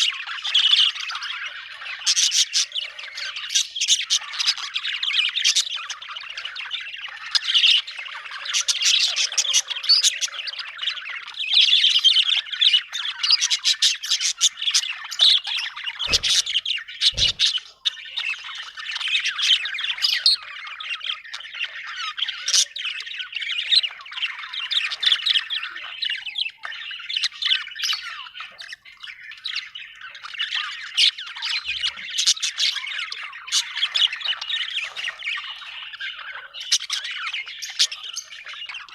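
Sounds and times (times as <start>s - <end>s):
budgerigars chattering: 0.0s - 38.9s
low thuds: 16.1s - 16.6s, 17.2s - 17.6s.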